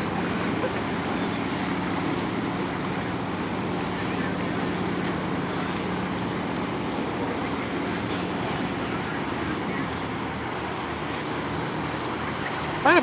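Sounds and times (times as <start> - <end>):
low engine drone: 0.0 - 13.0
water noise: 0.0 - 13.0
wind: 0.0 - 13.0.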